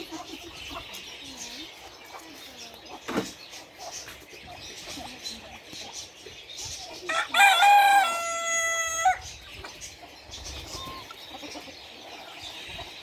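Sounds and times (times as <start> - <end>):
rooster crowing: 7.1 - 9.2.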